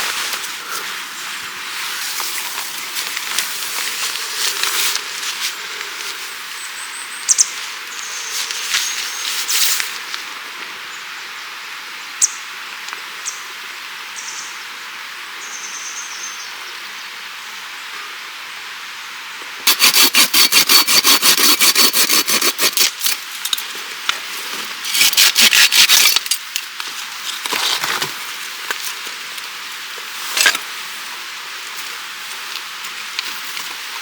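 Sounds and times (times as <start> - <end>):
steady rushing hiss: 0.0 - 6.9, 7.5 - 15.4, 26.2 - 34.0
hand saw cutting wood: 19.7 - 23.4, 24.8 - 26.5.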